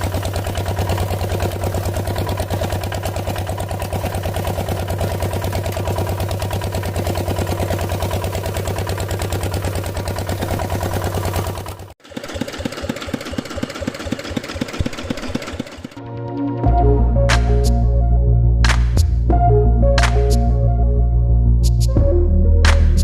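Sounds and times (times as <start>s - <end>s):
rough chugging engine: 0.0s - 16.0s
tractor engine pulsing: 0.0s - 17.8s.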